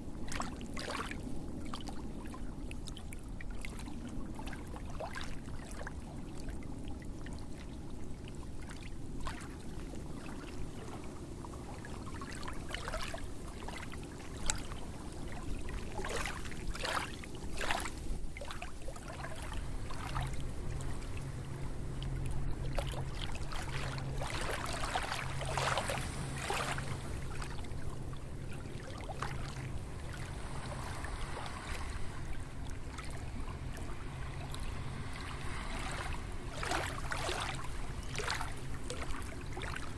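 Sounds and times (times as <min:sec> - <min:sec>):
low steady hum: 0:00.0 - 0:39.9
water splashing and trickling: 0:00.0 - 0:39.9
steady rushing noise: 0:14.8 - 0:39.6.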